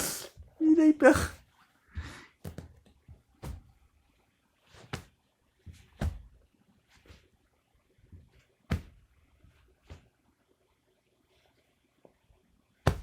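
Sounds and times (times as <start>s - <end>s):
soft thumps and scuffs: 1.9s - 3.8s, 4.6s - 7.4s, 8.0s - 10.2s.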